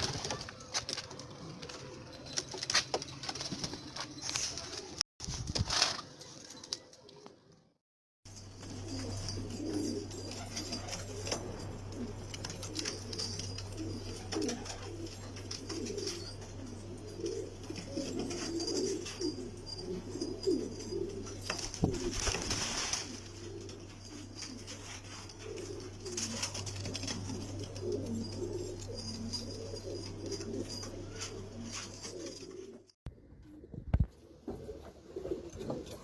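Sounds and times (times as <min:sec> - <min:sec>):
low hum: 0:08.3 - 0:32.1
rustling: 0:08.3 - 0:32.8
pigeons cooing: 0:08.4 - 0:32.8, 0:34.2 - 0:36.0.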